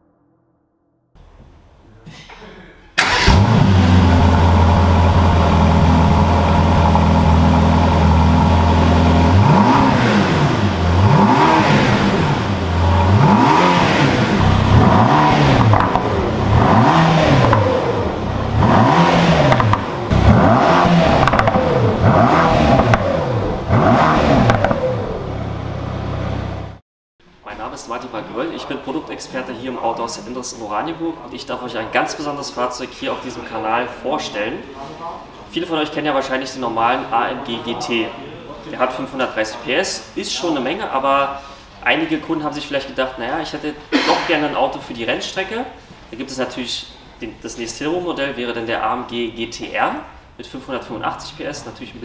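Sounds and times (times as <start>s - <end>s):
car engine idling and revving: 3.0s - 26.8s.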